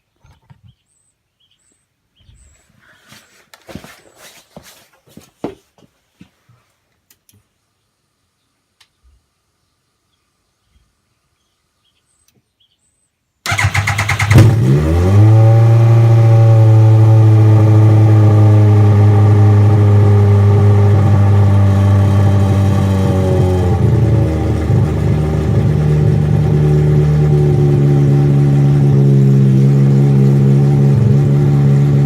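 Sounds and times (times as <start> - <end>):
small engine starting and running: 13.5 - 32.0.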